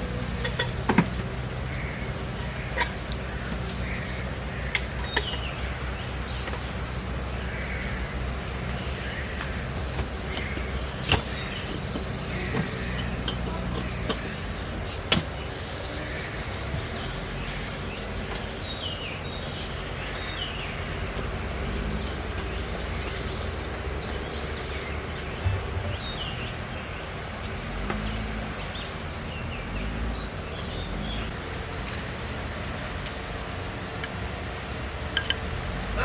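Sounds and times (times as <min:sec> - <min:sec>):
outdoor rushing noise: 0:00.0 - 0:36.0
small birds chirping: 0:00.0 - 0:36.0
low knock: 0:25.4 - 0:26.5.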